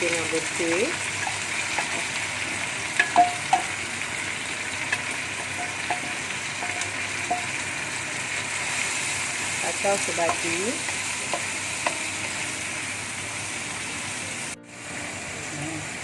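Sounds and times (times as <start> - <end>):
food sizzling in hot oil: 0.0 - 16.0
spatula knocking and scraping pan: 1.2 - 3.9, 4.9 - 7.7.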